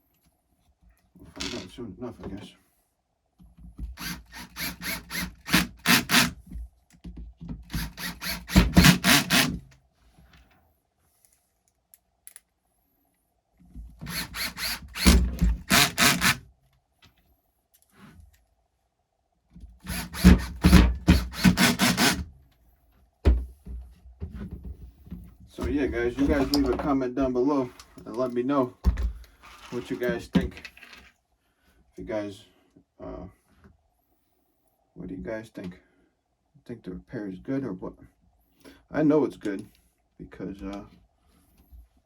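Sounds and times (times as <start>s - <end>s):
hand tool scraping strokes: 29.4s - 30.2s.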